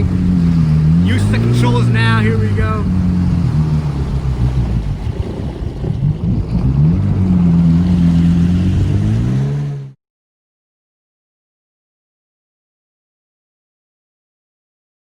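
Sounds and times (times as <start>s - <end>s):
jet ski engine running: 0.0s - 10.0s.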